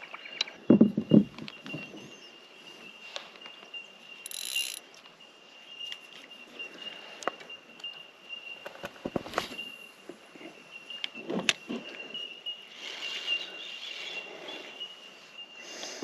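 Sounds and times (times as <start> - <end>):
fishing reel whirring and clicking: 4.2 - 4.9.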